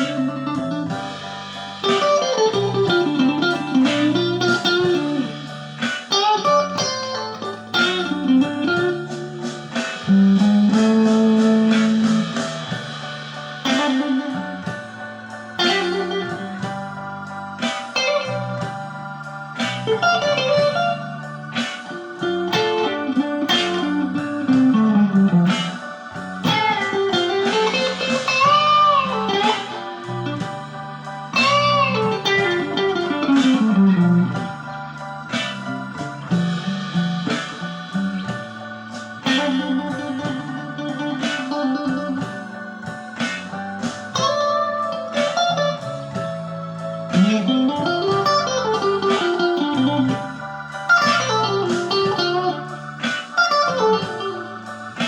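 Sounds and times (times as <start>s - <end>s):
electric guitar playing blues: 0.0s - 55.0s.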